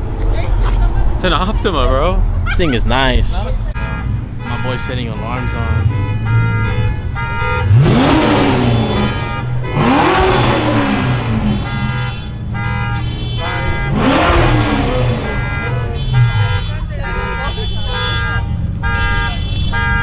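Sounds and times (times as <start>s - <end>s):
car engine revving: 0.0s - 20.0s
car alarm cycling tones: 2.5s - 20.0s.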